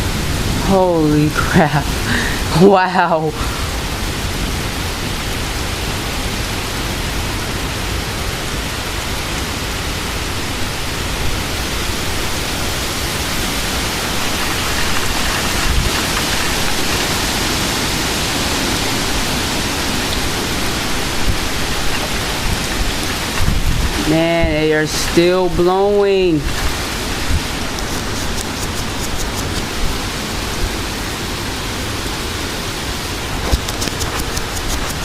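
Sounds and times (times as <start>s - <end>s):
heavy rain: 0.0s - 35.0s
strong wind gusts: 0.0s - 35.0s.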